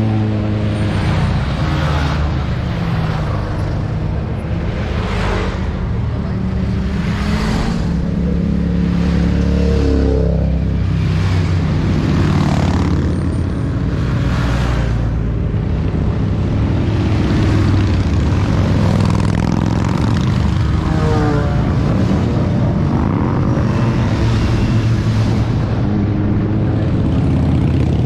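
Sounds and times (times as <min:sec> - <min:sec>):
motorcycle engines running: 0:00.0 - 0:28.0.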